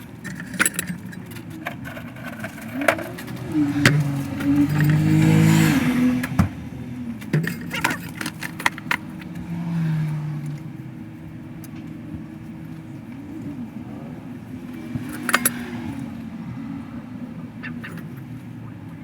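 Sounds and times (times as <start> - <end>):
metallic clinks and knocks: 0.0 - 6.4, 7.0 - 10.7, 14.8 - 16.2.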